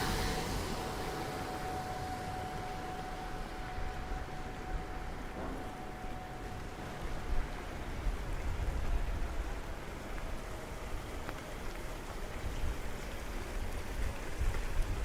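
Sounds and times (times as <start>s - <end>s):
low rumble: 0.0s - 8.9s
faint humming tone: 0.0s - 9.4s
steady rain falling: 0.0s - 15.0s.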